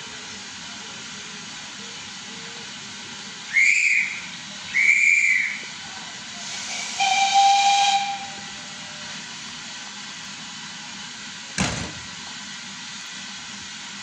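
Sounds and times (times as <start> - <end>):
steam hiss: 0.0 - 14.0
lower whistle blast: 3.5 - 5.7, 6.6 - 8.7
shrill whistle blasts: 3.5 - 5.7, 6.8 - 8.4.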